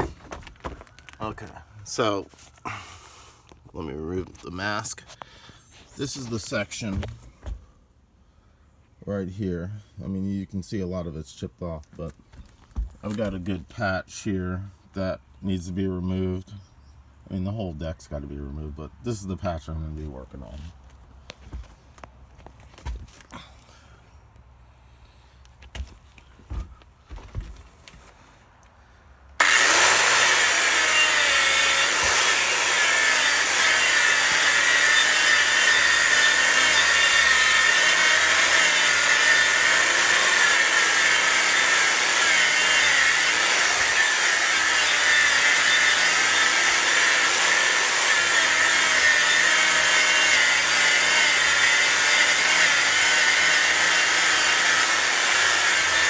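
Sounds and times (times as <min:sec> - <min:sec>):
angle grinder brushing wood: 0:00.0 - 0:07.6, 0:29.4 - 0:56.0.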